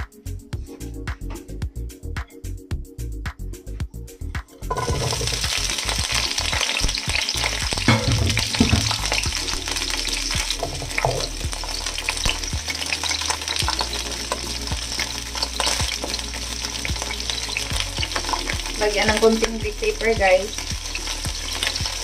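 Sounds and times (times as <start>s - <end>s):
food sizzling in hot oil: 4.6s - 22.0s
food knocked in a pan: 4.7s - 5.6s, 7.7s - 9.1s, 10.6s - 11.3s.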